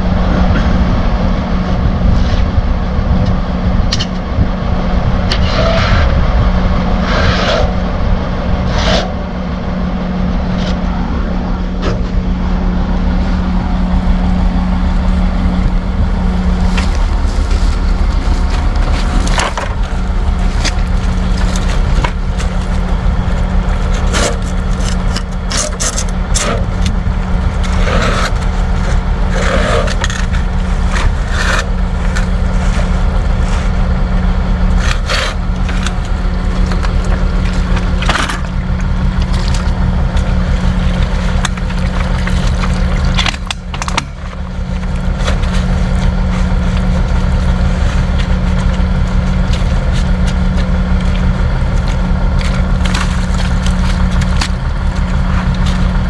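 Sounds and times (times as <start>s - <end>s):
diesel engine under load: 0.0s - 56.0s
scraping and cracking: 10.4s - 56.0s.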